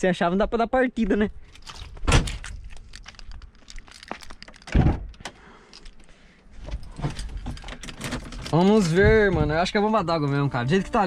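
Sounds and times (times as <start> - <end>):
keys jingling: 1.4 - 4.7, 5.6 - 9.0.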